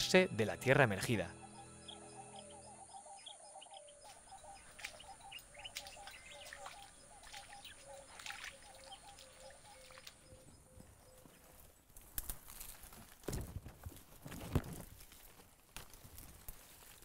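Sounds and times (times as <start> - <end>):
birds chirping: 0.0 - 11.9.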